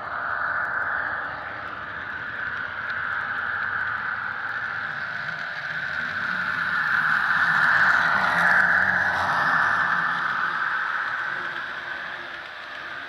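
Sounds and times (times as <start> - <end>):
model train wheels rattling: 3.2 - 13.0.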